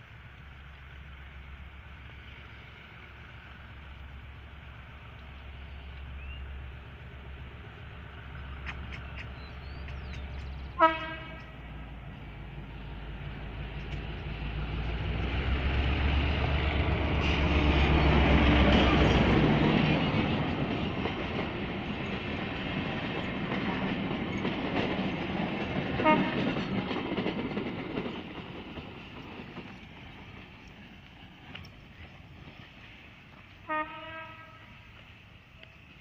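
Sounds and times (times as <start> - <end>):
locomotive engine drone: 0.0 - 36.0
train coaches rolling over rails: 0.0 - 36.0
train horn toot: 10.7 - 11.6, 25.9 - 26.6, 33.6 - 34.9.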